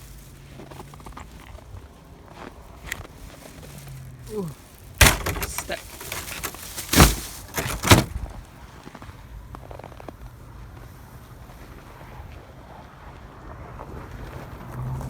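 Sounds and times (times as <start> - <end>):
loud door bangs: 5.0 - 8.3.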